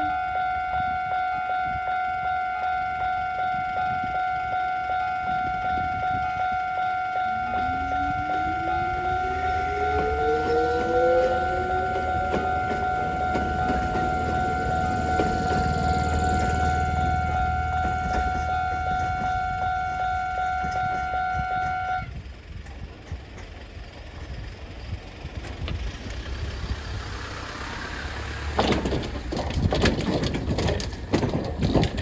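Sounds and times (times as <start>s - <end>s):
low train rumble: 0.0s - 32.0s
train traction motors whining: 0.0s - 32.0s
level crossing bell ringing: 5.5s - 21.1s.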